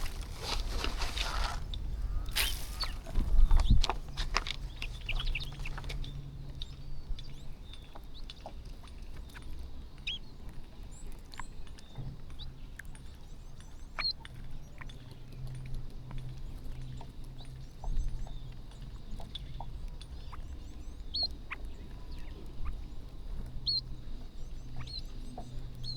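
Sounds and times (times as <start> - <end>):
beaks pecking at rice: 0.0 - 6.2
low steady hum: 0.0 - 9.0
small birds chirping: 0.0 - 25.9.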